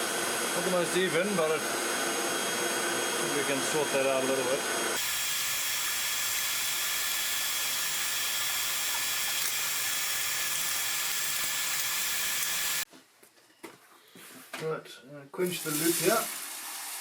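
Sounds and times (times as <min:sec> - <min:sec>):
forge blower hissing with whine: 0:00.0 - 0:12.9.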